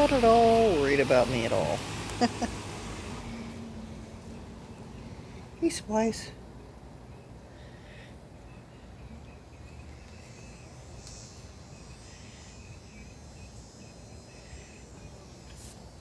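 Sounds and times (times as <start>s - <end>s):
insects chirping in trills: 8.4s - 16.0s.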